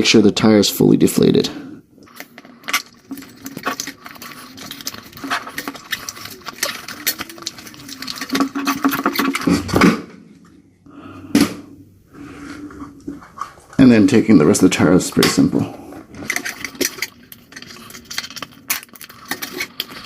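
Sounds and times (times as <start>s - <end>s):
handling clicks and scrapes: 2.0s - 9.8s, 15.2s - 20.0s.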